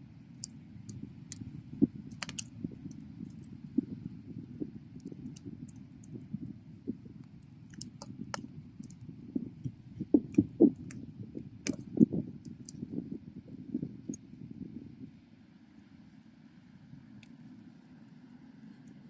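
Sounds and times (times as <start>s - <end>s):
bonfire flames rumbling: 0.1s - 15.3s
fire crackling and popping: 0.4s - 14.3s.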